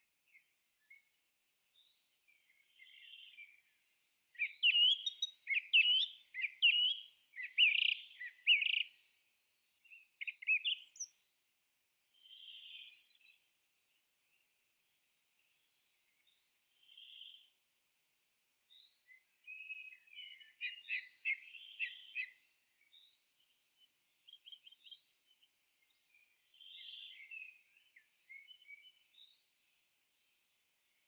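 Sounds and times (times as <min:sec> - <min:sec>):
birds chirping: 0:04.4 - 0:08.8.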